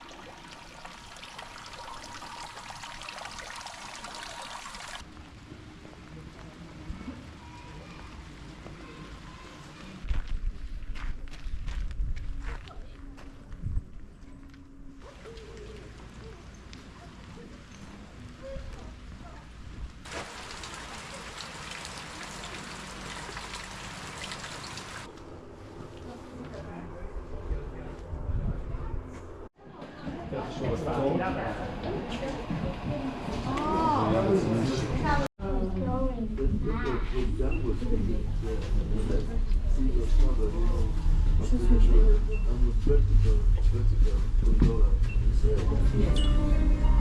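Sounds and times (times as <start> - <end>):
trickling water: 0.0 - 5.1, 20.0 - 25.1
rain falling: 20.0 - 25.1.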